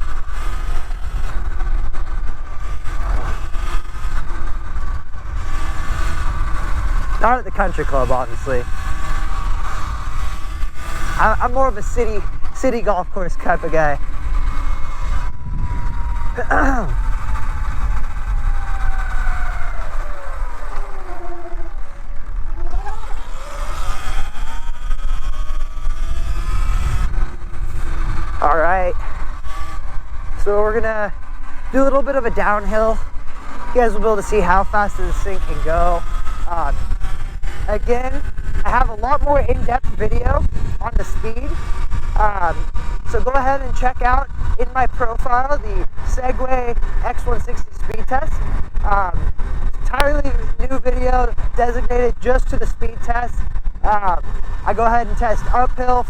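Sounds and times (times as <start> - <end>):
electric motor whine: 0.0 - 43.1
wind rumble on microphone: 0.0 - 56.0.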